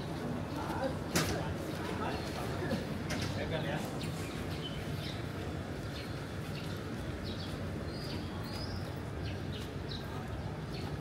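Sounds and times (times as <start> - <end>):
small birds chirping: 3.8 - 11.0.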